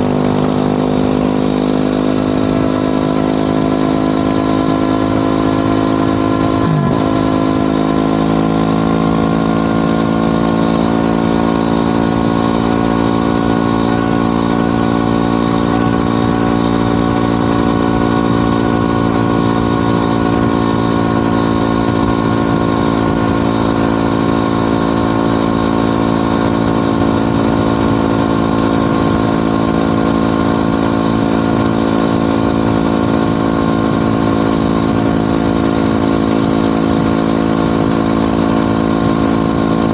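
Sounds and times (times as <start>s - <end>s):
motorcycle engine at steady revs: 0.0s - 39.9s.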